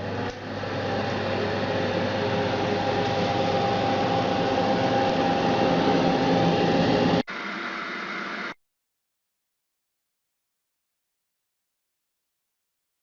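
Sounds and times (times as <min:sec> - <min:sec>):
angle grinder whirring: 0:00.0 - 0:08.5.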